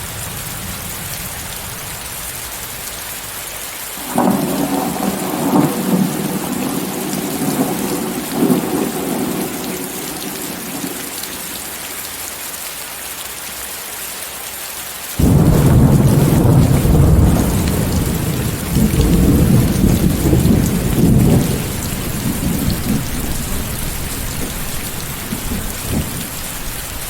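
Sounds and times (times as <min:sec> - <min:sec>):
heavy rain: 0:00.0 - 0:27.0
loud thunderclap: 0:04.0 - 0:11.6, 0:15.2 - 0:26.8
thunder rumbling: 0:04.0 - 0:11.8, 0:15.2 - 0:27.0.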